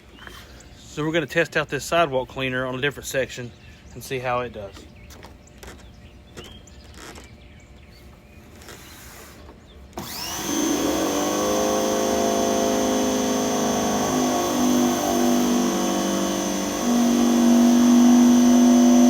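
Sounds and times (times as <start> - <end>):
pressure washer motor running: 10.0 - 19.0.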